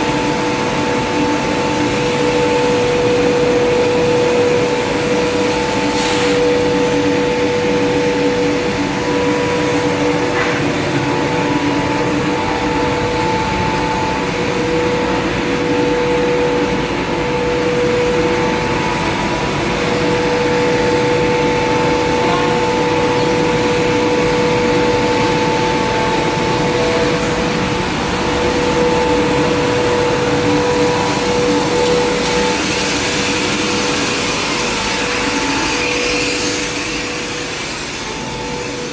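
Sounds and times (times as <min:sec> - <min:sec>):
two-tone motor whine: 0:00.0 - 0:38.9.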